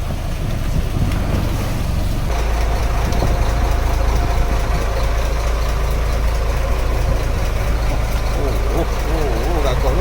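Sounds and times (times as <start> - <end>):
boat engine running: 0.0 - 10.0.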